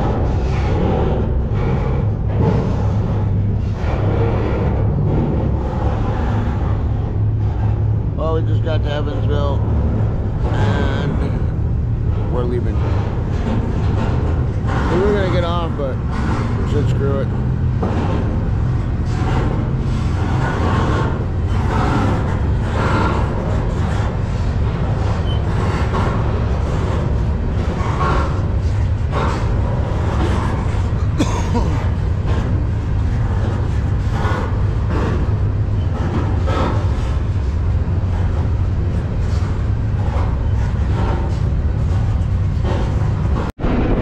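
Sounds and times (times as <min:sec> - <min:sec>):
freight train rumbling: 0:00.0 - 0:44.0
rattles and clanks: 0:00.0 - 0:44.0.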